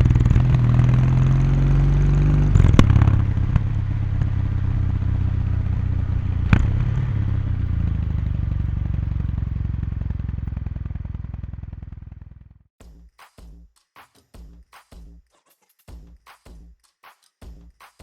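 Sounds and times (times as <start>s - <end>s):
motorcycle exhaust at speed: 0.0s - 12.7s
rhythmic background music: 12.8s - 18.0s.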